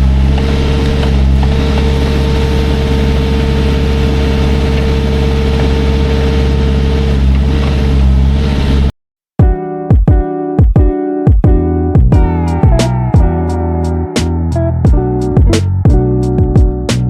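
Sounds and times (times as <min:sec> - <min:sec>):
large engine running: 0:00.0 - 0:08.9.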